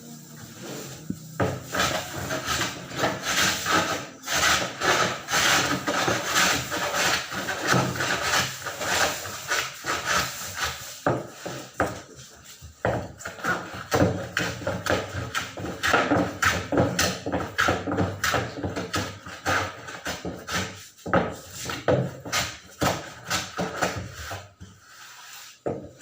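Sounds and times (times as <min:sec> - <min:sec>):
rhythmic rasping scraping strokes: 0:00.1 - 0:11.0.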